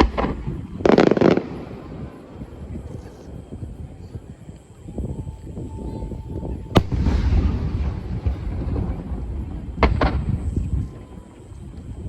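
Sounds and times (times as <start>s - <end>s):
fireworks bangs: 0.0s - 3.2s, 6.2s - 11.9s
fireworks crackle: 0.0s - 3.8s, 6.1s - 12.0s.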